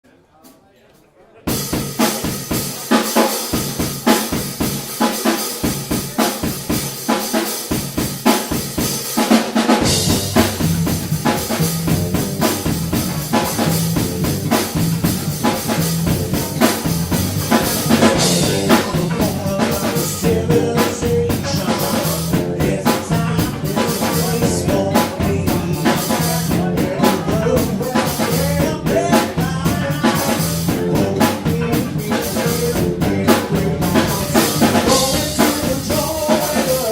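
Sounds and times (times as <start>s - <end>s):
drum kit beat: 1.5s - 36.9s
live band playing: 1.5s - 36.9s
heavy low end bass: 9.8s - 36.9s.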